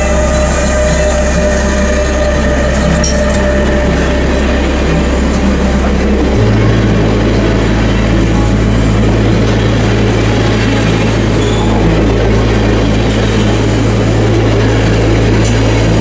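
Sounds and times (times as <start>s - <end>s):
electric locomotive whine: 0.0s - 16.0s
low hum: 0.0s - 16.0s
wheel-on-rail noise: 0.0s - 16.0s.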